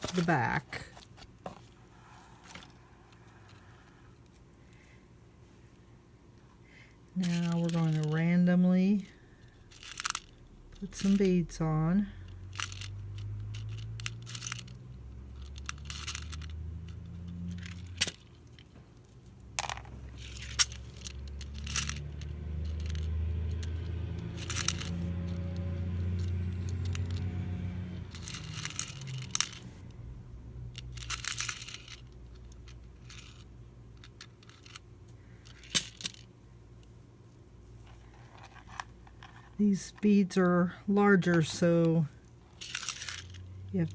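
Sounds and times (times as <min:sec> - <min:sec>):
low steady hum: 0:00.0 - 0:43.9
beads clicking and clinking: 0:07.2 - 0:08.4, 0:09.4 - 0:30.0, 0:30.6 - 0:34.8, 0:35.4 - 0:36.3, 0:37.6 - 0:43.9.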